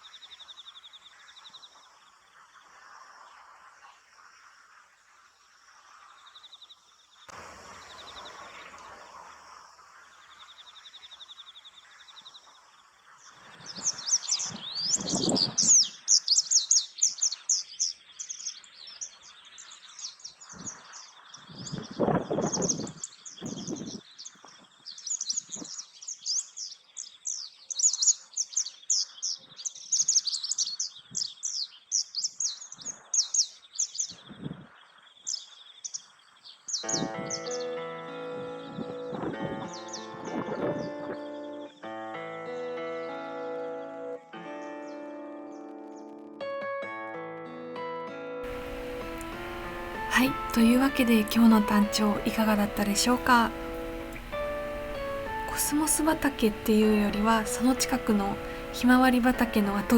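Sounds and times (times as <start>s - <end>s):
songbirds chirping: 0.0s - 46.3s, 48.5s - 59.9s
steady high tone: 48.5s - 59.9s.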